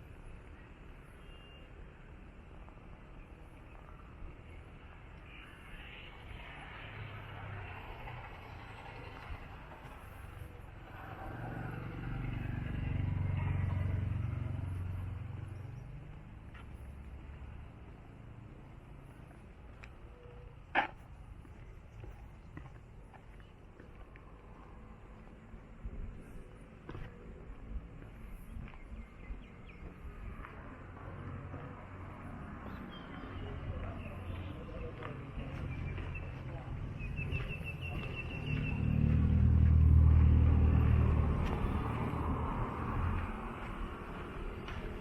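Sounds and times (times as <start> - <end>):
faint bird chirps: 0.5 - 1.8
motor vehicle passing by: 6.5 - 18.3, 29.2 - 45.0.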